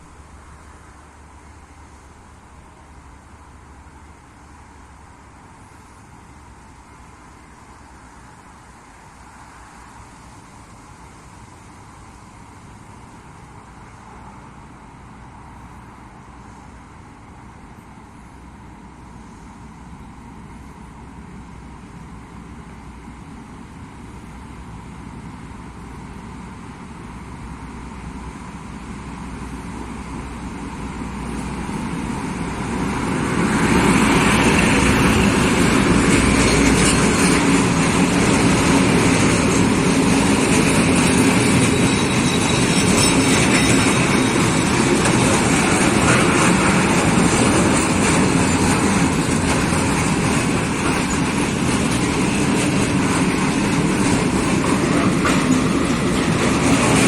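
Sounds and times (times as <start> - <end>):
train passing: 0.0 - 57.0
wheels running on rails: 22.0 - 57.0.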